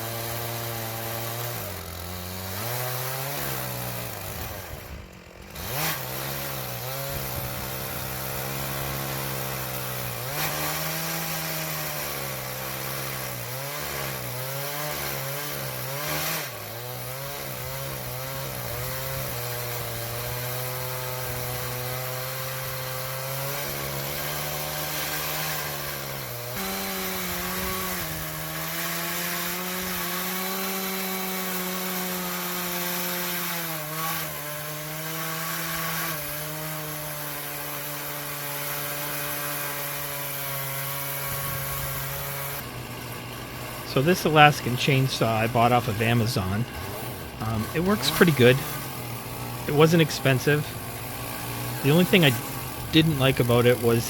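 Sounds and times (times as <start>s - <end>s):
chainsaw cutting through log: 0.0s - 54.0s.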